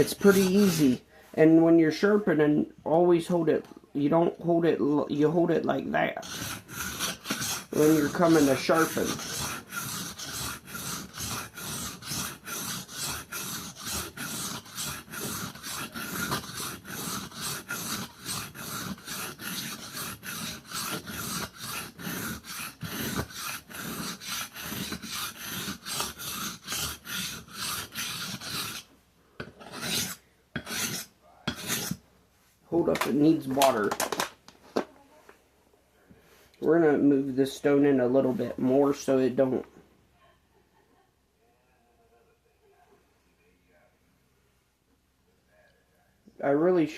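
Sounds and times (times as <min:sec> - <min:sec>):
knife scraping on whetstone: 0:00.0 - 0:01.0, 0:06.2 - 0:32.0.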